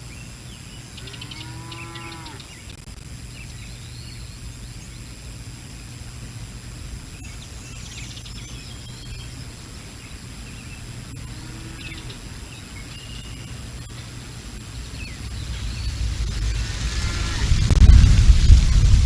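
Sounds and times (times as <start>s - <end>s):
wind buffeting microphone: 14.8s - 19.0s.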